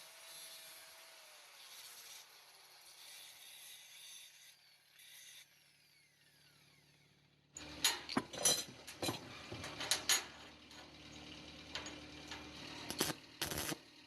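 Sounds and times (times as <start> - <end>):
metal clicks and knocks: 7.6 - 13.7.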